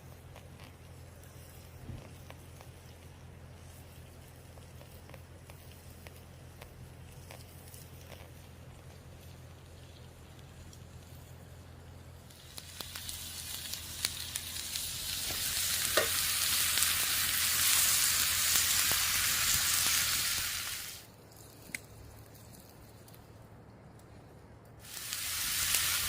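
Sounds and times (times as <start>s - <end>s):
low steady hum: 0.0s - 25.4s
meat sizzling: 12.2s - 21.0s, 24.8s - 26.0s.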